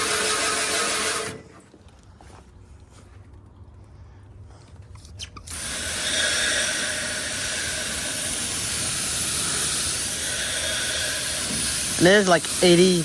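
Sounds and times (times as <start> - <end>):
hose spraying water: 0.0 - 1.4, 5.5 - 13.0.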